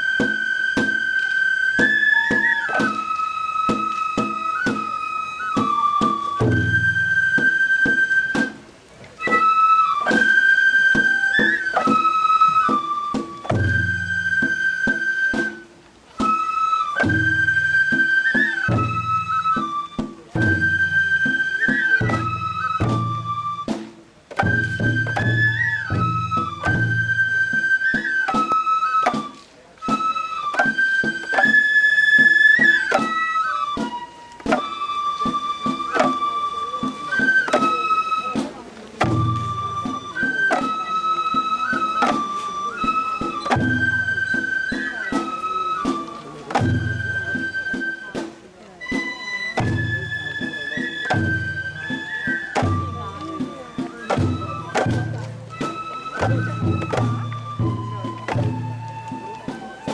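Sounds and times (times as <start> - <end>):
flute melody: 0.0 - 59.9
drum strikes: 1.7 - 31.6, 32.2 - 59.9
low booming drum: 39.0 - 40.2.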